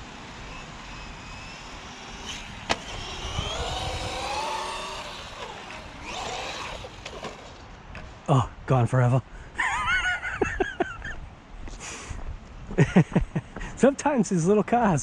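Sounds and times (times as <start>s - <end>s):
electric motor whining: 0.0s - 7.7s
tyre and ground noise: 0.0s - 8.5s.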